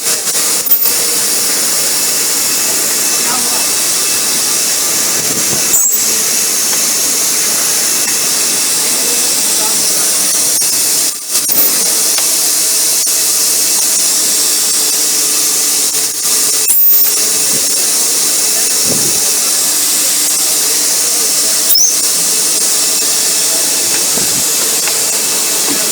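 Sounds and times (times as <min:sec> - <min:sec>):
short sharp machine sound: 0:00.0 - 0:19.4, 0:21.3 - 0:23.2
welding machine high-pitched hiss: 0:00.0 - 0:25.9.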